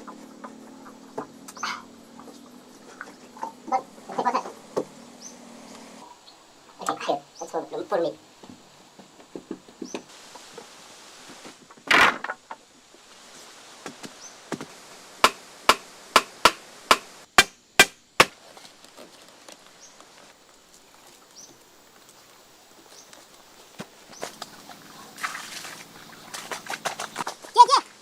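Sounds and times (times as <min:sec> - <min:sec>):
tool chopping wood: 0:14.0 - 0:18.4.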